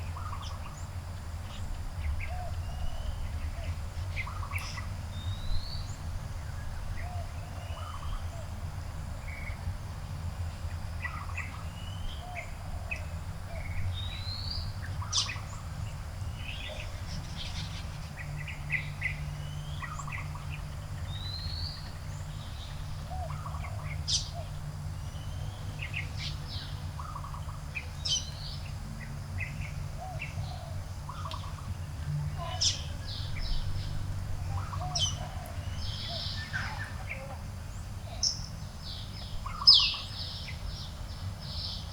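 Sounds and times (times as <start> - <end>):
low steady rumble: 0.0 - 41.9
birds chirping: 30.1 - 41.9.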